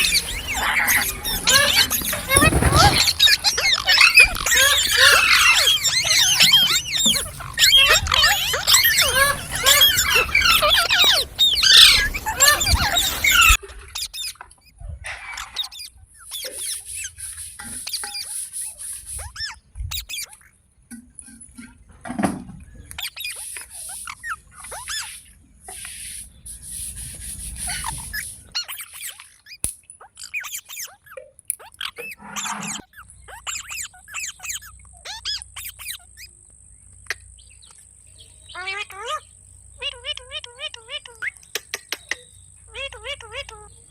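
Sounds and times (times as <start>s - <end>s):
parrot chirping and squeaking: 0.0s - 20.5s, 22.8s - 26.1s, 27.7s - 36.4s, 38.5s - 43.9s.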